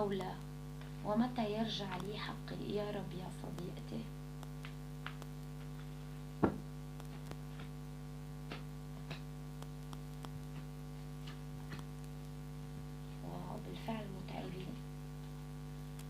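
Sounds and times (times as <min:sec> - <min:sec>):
electrical mains hum: 0:00.0 - 0:16.0
faint clicks: 0:04.4 - 0:05.8, 0:07.0 - 0:07.4, 0:08.5 - 0:10.7.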